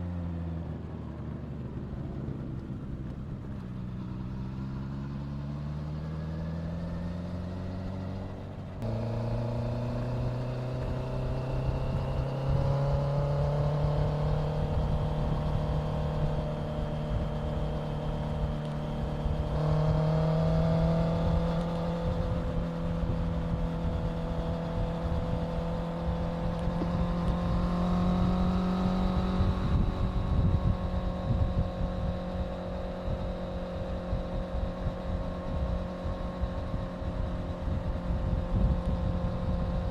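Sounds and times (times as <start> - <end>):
motorcycle engine accelerating: 0.0 - 39.9
wind rumble: 8.2 - 39.9.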